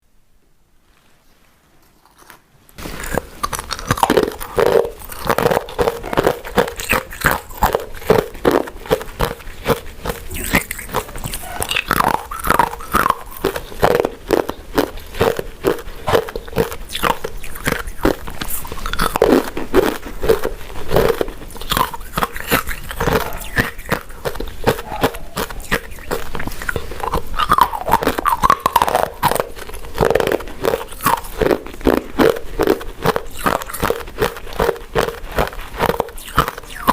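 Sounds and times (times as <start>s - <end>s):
sticky wet chewing: 2.0s - 36.9s.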